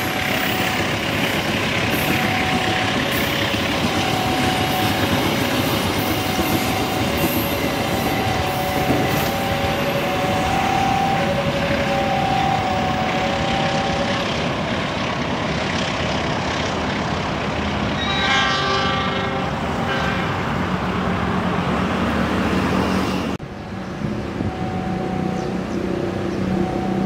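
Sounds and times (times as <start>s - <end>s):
train wheels on rails: 0.0s - 27.0s
train horn blasts: 1.9s - 14.4s, 18.0s - 20.6s.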